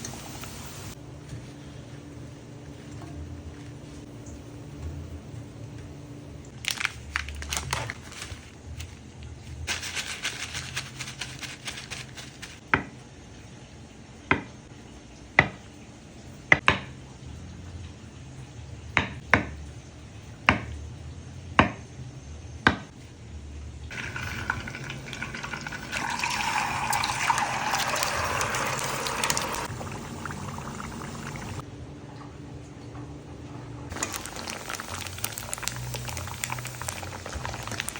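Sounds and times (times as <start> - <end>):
liquid being poured: 23.9 - 31.6, 33.9 - 37.9.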